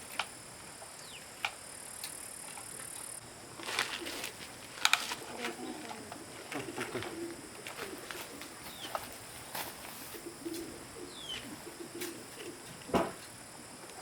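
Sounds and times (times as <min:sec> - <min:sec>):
dove cooing: 0:03.6 - 0:04.4, 0:05.0 - 0:13.2
high falling bird chirps: 0:10.2 - 0:11.5.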